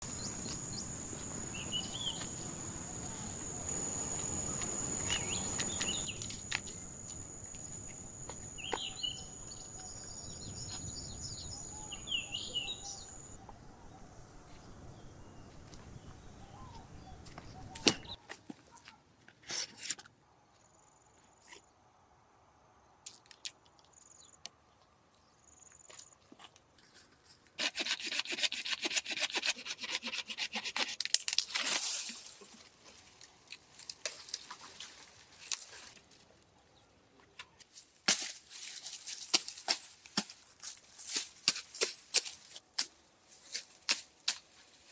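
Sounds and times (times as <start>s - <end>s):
insect trill: 0.0s - 13.4s
bird chirps: 0.1s - 3.8s, 8.6s - 14.1s.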